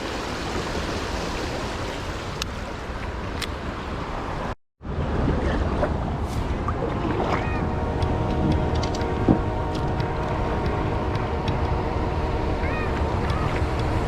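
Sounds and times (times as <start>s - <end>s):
river water flowing: 0.0s - 14.0s
wind on microphone: 4.8s - 14.0s.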